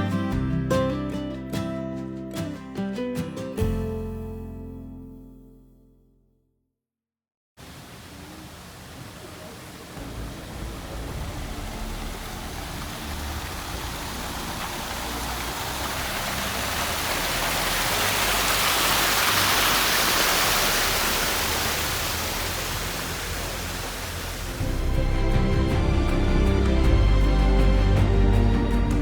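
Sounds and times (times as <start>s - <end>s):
rushing water: 7.6s - 29.0s.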